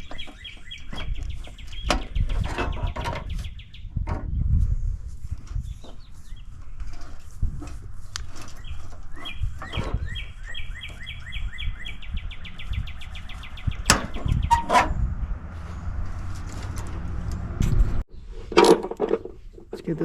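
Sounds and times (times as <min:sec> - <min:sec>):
bird chirping into a fast trill: 0:08.6 - 0:14.6.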